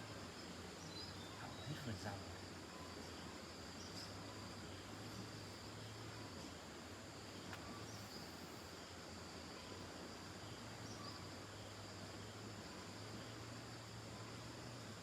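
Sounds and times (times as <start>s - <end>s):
crickets chirring: 0.0s - 15.0s
faint chirps: 0.0s - 15.0s.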